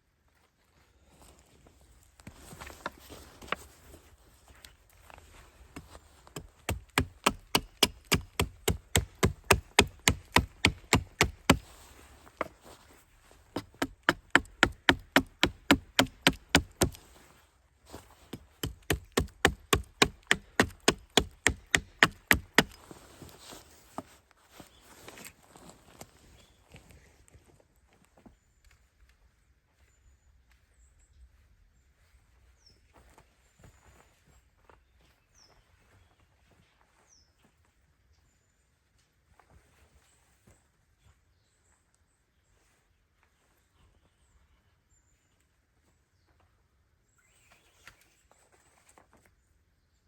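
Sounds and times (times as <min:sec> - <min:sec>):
tent stakes being hammered: 0:05.8 - 0:12.5, 0:13.6 - 0:17.1, 0:18.2 - 0:23.0.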